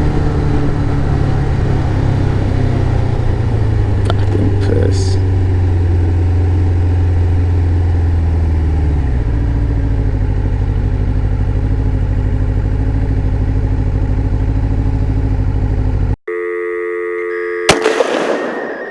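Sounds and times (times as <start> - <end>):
motorcycle engine running: 0.0 - 16.2
chord of electronic tones: 16.3 - 18.9.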